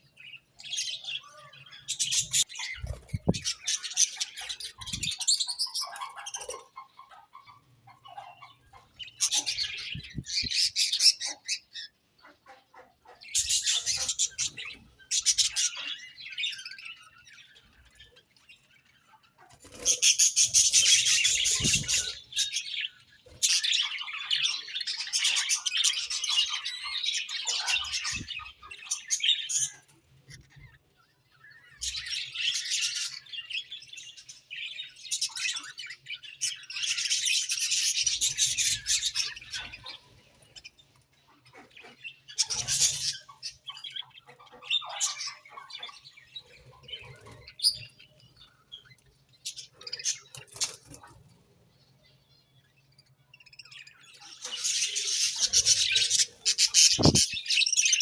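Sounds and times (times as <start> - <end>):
budgerigars chirping and warbling: 0.0 - 58.0.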